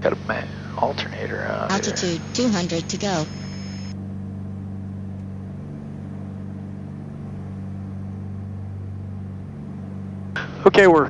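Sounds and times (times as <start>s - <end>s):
propeller aircraft engines droning: 0.0s - 11.0s.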